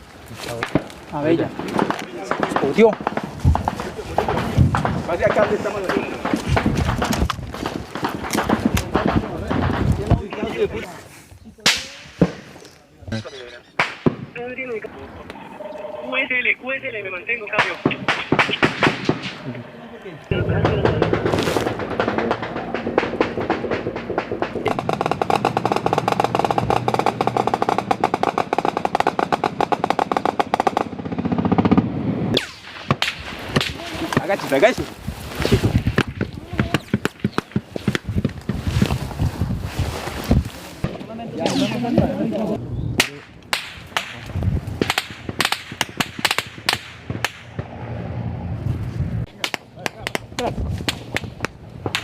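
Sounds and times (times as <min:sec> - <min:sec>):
gunfire cracks and pops: 0:00.5 - 0:03.9, 0:04.7 - 0:10.4, 0:43.0 - 0:47.7, 0:49.3 - 0:52.0
automatic gunfire: 0:17.6 - 0:19.4, 0:20.4 - 0:33.8.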